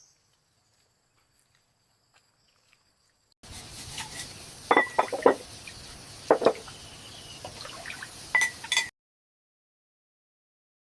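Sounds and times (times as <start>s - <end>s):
steady hiss: 3.4s - 8.8s
cookware clinking and knocking: 4.0s - 5.4s, 6.3s - 6.6s, 8.4s - 8.9s.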